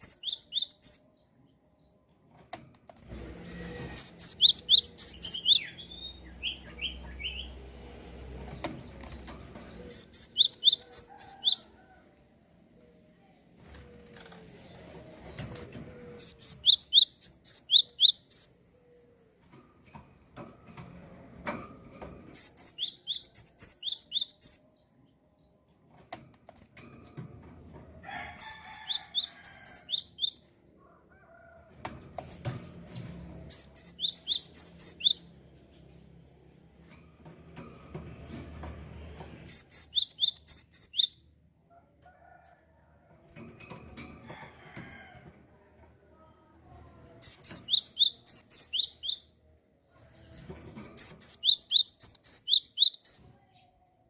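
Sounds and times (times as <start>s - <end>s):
songbird chirping: 0.0s - 2.5s, 3.2s - 19.6s, 22.4s - 26.0s, 28.4s - 30.5s, 33.0s - 36.0s, 39.1s - 41.3s, 46.7s - 53.9s.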